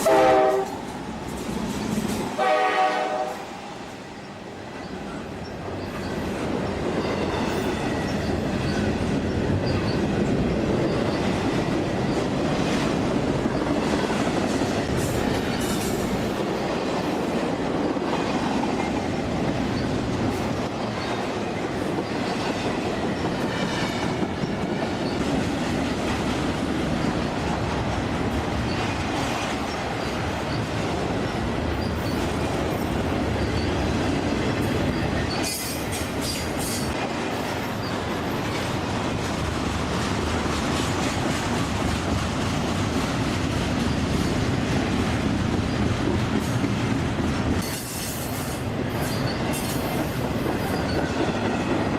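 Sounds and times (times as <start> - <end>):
railroad cars rolling past: 0.0 - 51.9
train wheel squeals: 3.7 - 12.8, 14.6 - 16.4, 19.6 - 25.4, 28.6 - 38.7, 47.6 - 51.9.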